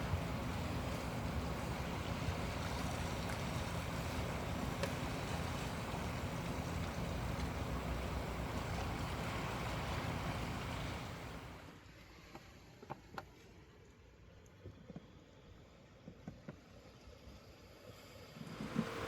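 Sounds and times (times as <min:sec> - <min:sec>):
ocean waves washing on shore: 0:00.0 - 0:11.6
wind rumbling on microphone: 0:00.0 - 0:11.6
faint clicks: 0:04.6 - 0:05.2.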